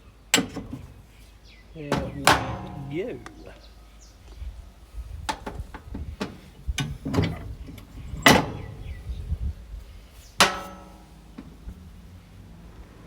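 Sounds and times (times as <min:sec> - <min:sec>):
metal knocks and clanks: 0:01.8 - 0:03.6, 0:05.3 - 0:09.2, 0:10.4 - 0:11.8
ringing metal strikes: 0:01.9 - 0:03.6, 0:10.4 - 0:11.3.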